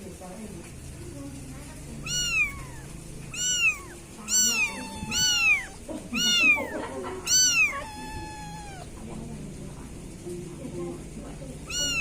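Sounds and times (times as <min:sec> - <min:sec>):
kitten meowing: 0:02.0 - 0:09.0, 0:11.6 - 0:12.0.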